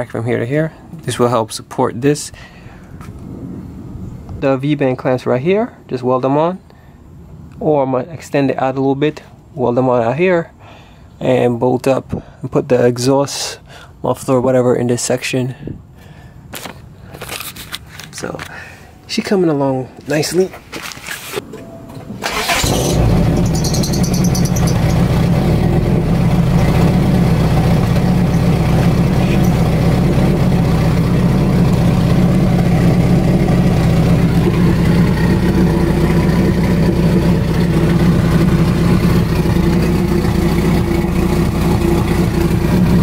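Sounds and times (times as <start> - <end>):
car engine starting and idling: 21.5 - 43.0.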